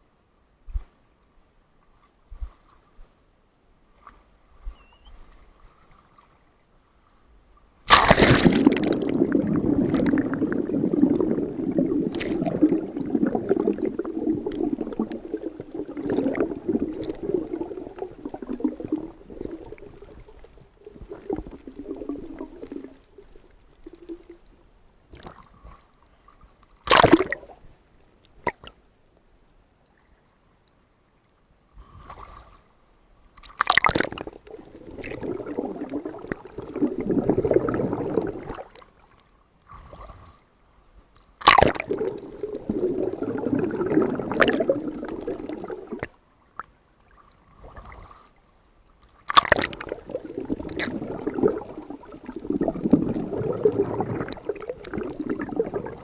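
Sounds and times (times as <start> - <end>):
water sloshing and gurgling: 3.9 - 28.8, 31.8 - 40.5, 41.2 - 56.0
sharp water splash: 7.8 - 19.8, 26.8 - 27.5, 33.4 - 38.8, 41.4 - 46.1, 49.2 - 56.0.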